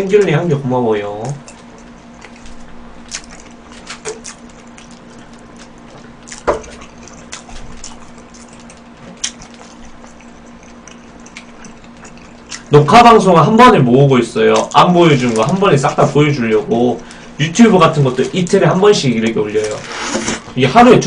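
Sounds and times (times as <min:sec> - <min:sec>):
steady low hum: 0:00.0 - 0:21.0
person chewing with mouth smacks: 0:01.1 - 0:13.0.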